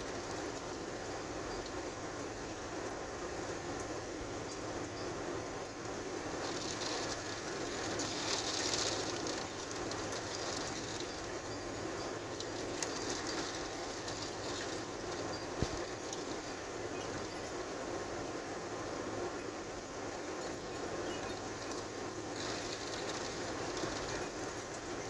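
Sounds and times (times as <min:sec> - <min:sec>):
heavy rain: 0:05.9 - 0:16.8, 0:21.4 - 0:25.0.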